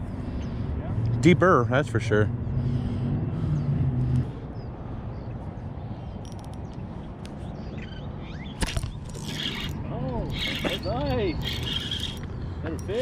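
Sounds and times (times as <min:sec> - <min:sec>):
traffic rumble: 0:00.0 - 0:13.0
vehicle engine hum: 0:00.0 - 0:13.0
faint bird chirps: 0:07.4 - 0:09.7.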